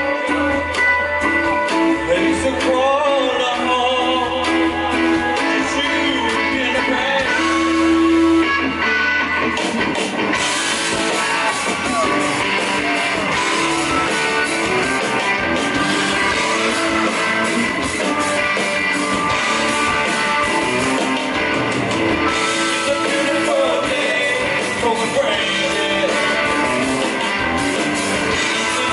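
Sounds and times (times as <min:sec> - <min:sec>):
man singing: 0:00.0 - 0:08.4, 0:22.3 - 0:27.0, 0:28.3 - 0:28.9
blues-rock band playing: 0:00.0 - 0:28.9
electric guitar: 0:00.0 - 0:28.9.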